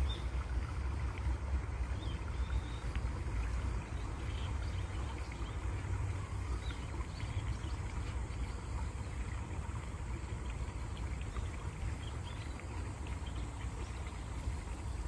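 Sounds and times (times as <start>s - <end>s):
water rushing with low rumble: 0.0s - 15.0s
small birds chirping: 3.8s - 8.3s, 11.2s - 15.0s.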